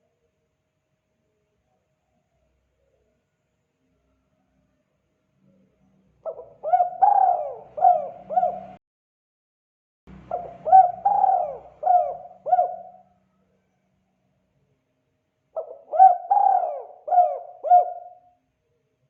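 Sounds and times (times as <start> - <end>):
dove cooing: 6.2 - 8.8, 10.3 - 13.1, 15.6 - 18.3.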